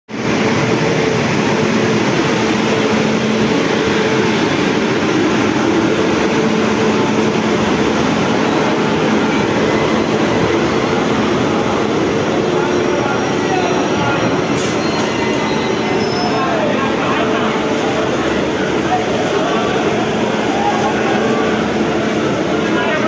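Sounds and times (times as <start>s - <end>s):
train coaches rumbling on rails: 0.1s - 23.0s.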